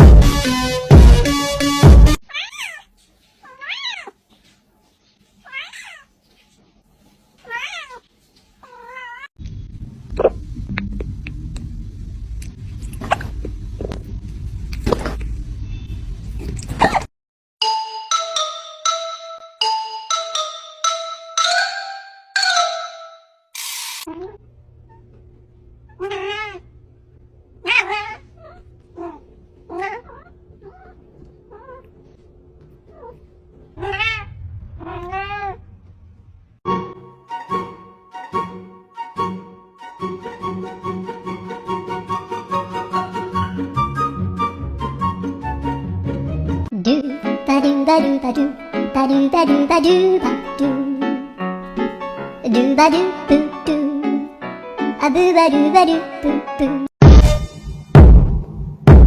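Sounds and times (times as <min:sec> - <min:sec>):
cat meowing: 0:02.3 - 0:04.2, 0:05.4 - 0:06.1, 0:07.4 - 0:08.0, 0:08.6 - 0:09.3, 0:25.9 - 0:26.7, 0:27.6 - 0:32.0, 0:32.9 - 0:35.7.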